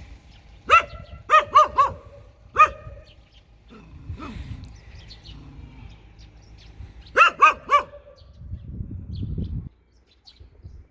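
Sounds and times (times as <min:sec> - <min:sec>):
low rumbling noise: 0:00.0 - 0:09.8
dog barking fiercely: 0:00.6 - 0:04.6, 0:07.0 - 0:08.4.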